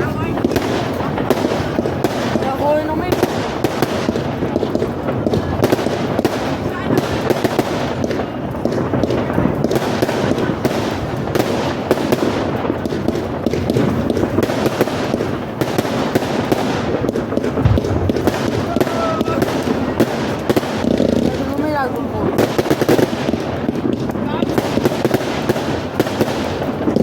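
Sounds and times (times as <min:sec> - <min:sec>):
fireworks crackling: 0:00.0 - 0:27.0
low firework thump: 0:17.4 - 0:19.9.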